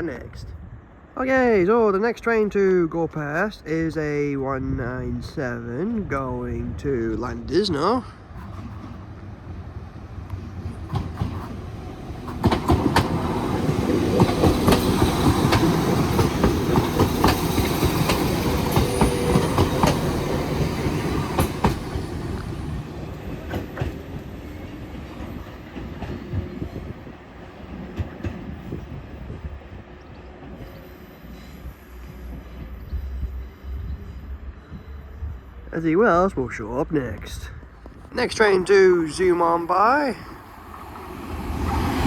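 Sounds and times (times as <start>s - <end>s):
train passing: 0.0s - 42.0s
wheels clicking over rail joints: 10.0s - 26.6s.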